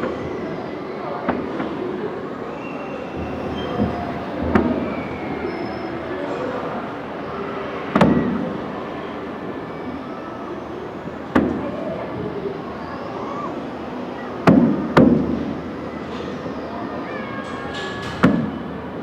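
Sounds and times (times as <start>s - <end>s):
distant fireworks booming: 3.2s - 6.1s.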